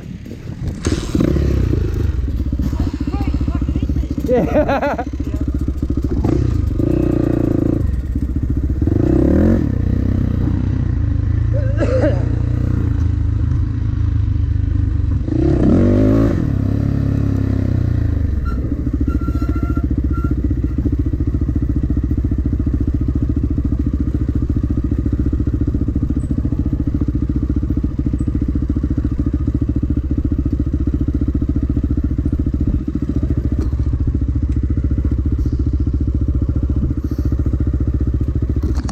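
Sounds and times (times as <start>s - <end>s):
dirt bike engine revving: 0.0s - 13.0s, 15.2s - 27.5s.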